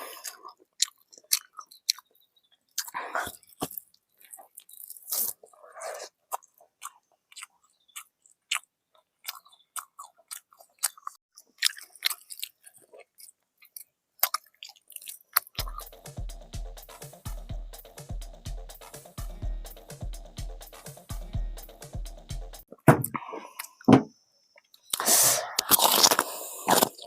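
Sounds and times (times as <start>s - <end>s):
person chewing crunchy food: 0.0s - 16.1s, 24.6s - 27.0s.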